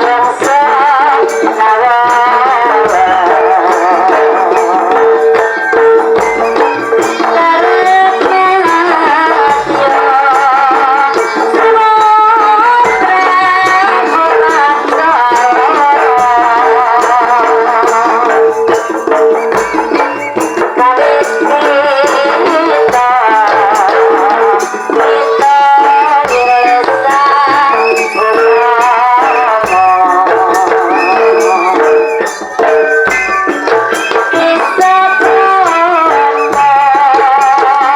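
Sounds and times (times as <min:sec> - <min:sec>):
wavering melody line: 0:02.7 - 0:11.8, 0:24.6 - 0:37.2
steady held tone: 0:24.1 - 0:37.6.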